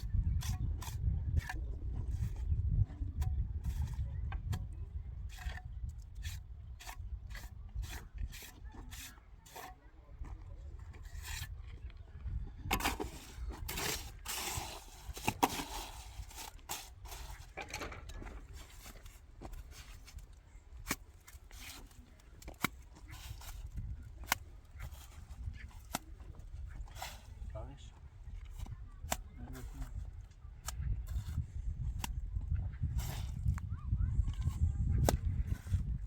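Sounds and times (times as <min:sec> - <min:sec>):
scraping strokes: 0:05.3 - 0:09.9, 0:10.9 - 0:11.7, 0:12.6 - 0:32.2.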